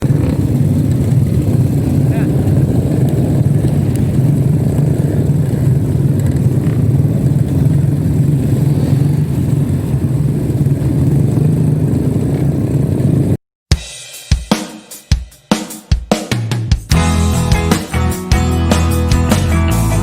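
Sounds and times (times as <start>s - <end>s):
motorcycle engine running steadily: 0.0s - 13.9s.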